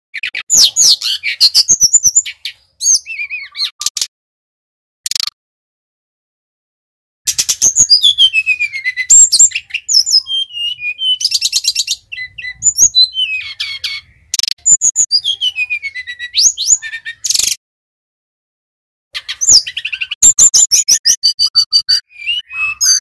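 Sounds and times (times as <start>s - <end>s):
flycatcher singing: 7.3s - 17.6s.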